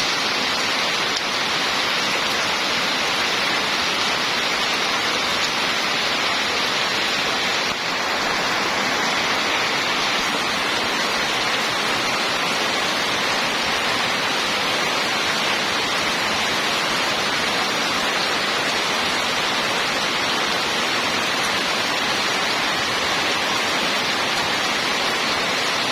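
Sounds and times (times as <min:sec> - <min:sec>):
rain falling: 0:00.0 - 0:25.9.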